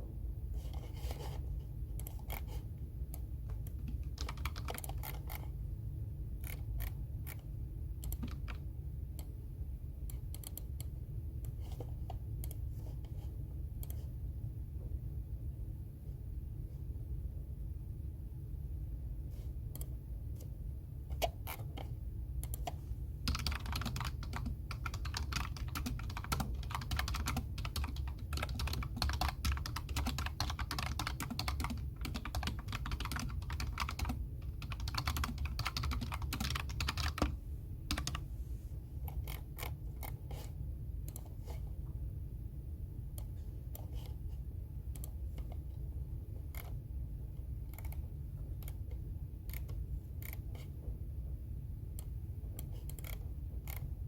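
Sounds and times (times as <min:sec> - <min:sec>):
typing on computer keyboard: 0:03.5 - 0:05.5, 0:06.4 - 0:07.4, 0:08.0 - 0:08.6, 0:21.2 - 0:38.2, 0:47.7 - 0:48.0, 0:52.0 - 0:53.9.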